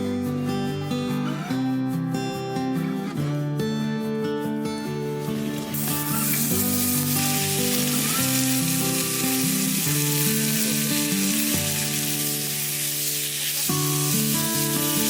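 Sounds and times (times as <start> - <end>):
acoustic guitar music: 0.0 - 15.0
food sizzling in frying: 5.3 - 15.0.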